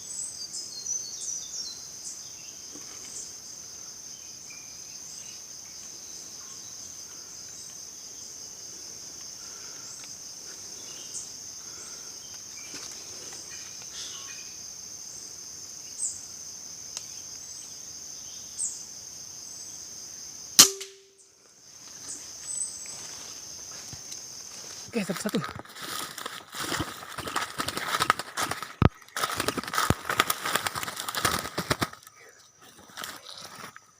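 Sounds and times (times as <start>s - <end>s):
insects droning: 0.0s - 33.9s
air rifle shot: 20.6s - 21.1s.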